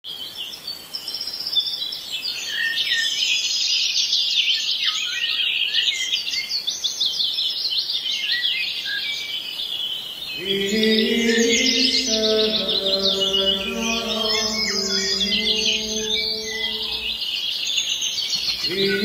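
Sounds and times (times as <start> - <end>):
music with low sustained tones: 10.4 - 17.2.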